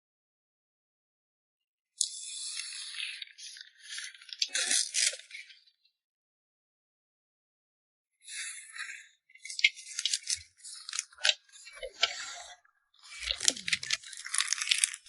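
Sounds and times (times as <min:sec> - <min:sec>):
packaging crinkling and rustling: 0:13.2 - 0:15.0.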